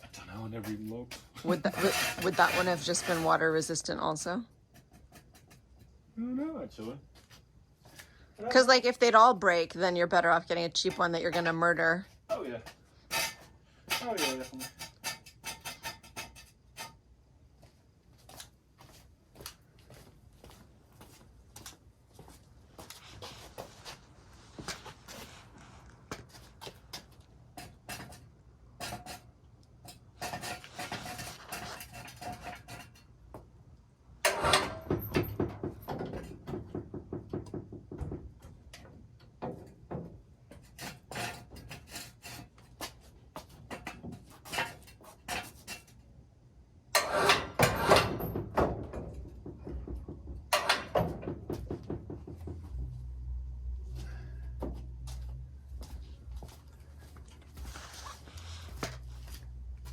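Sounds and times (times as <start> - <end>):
tools knocking and clattering: 4.7 - 6.0, 10.7 - 11.9, 12.6 - 17.0, 27.5 - 33.4, 34.2 - 46.1, 46.9 - 52.9.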